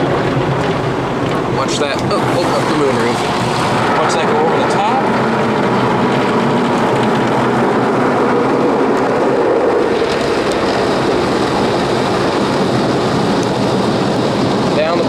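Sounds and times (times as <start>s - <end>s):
car-wash brush swishing: 1.8s - 4.3s.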